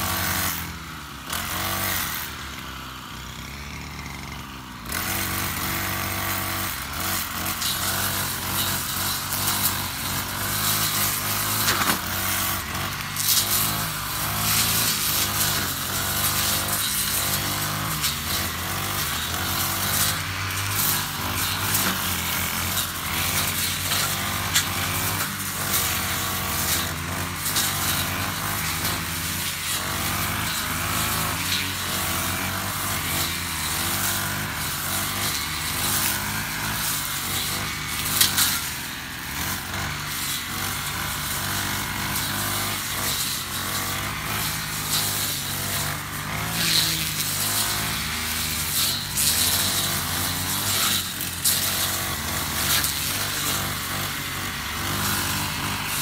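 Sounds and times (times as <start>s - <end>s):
brush cutter engine running: 0.0s - 56.0s
blade swishing through grass: 5.0s - 56.0s.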